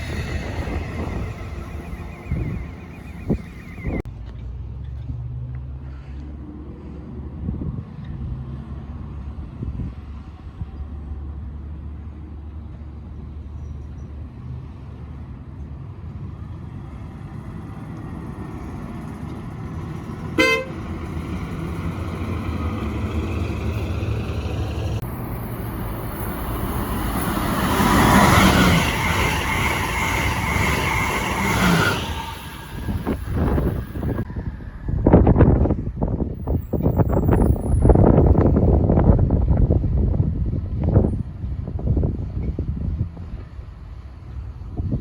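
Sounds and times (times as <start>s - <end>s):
train rushing past: 0.0s - 4.0s, 16.3s - 42.3s
train horn toot: 20.3s - 20.9s.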